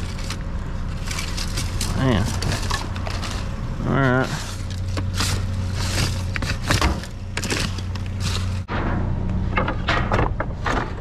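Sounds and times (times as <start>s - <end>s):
rustling trash: 0.0s - 8.8s
steady low hum: 0.0s - 11.0s
objects knocking and thudding: 4.4s - 11.0s.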